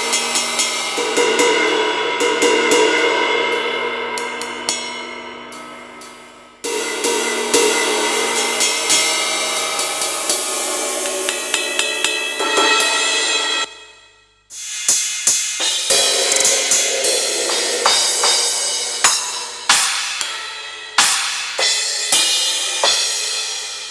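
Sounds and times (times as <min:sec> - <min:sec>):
electronic cymbal ringing: 0:05.5 - 0:23.2
electronic drum hits: 0:14.7 - 0:21.7.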